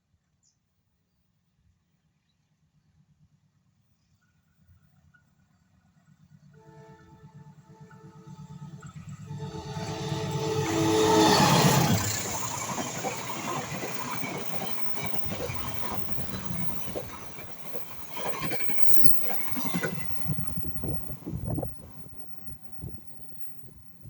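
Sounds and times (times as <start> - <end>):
passenger train passing: 6.6 - 24.0.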